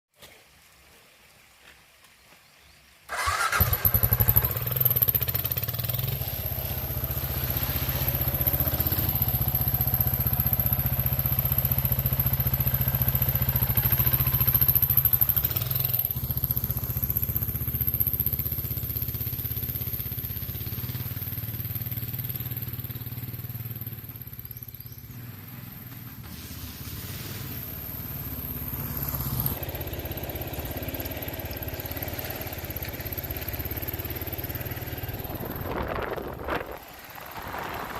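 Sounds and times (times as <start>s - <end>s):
motorcycle engine running: 3.1s - 37.9s.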